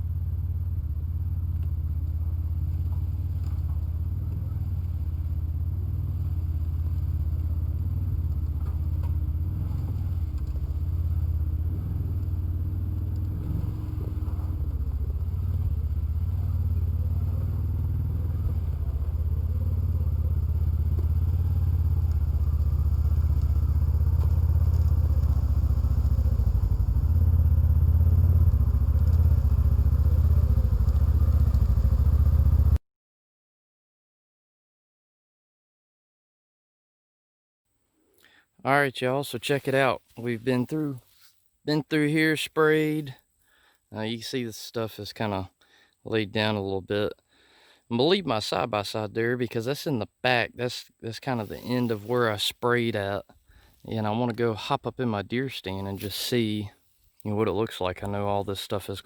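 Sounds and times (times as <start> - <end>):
vehicle engine low rumble: 0.0 - 32.8, 51.1 - 59.0.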